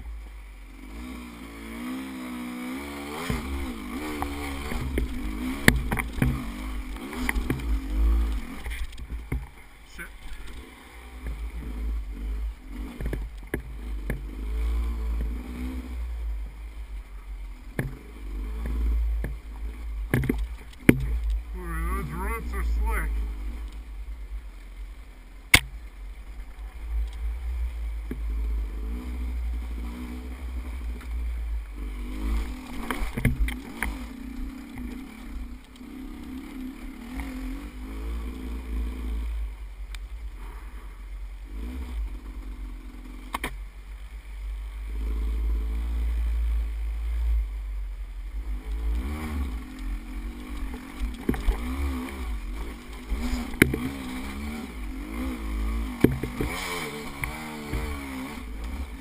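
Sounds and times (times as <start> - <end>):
motorcycle engine revving: 0.0 - 59.0
steady low rumble: 0.0 - 59.0
sharp knocks: 20.1 - 21.2, 56.0 - 57.9.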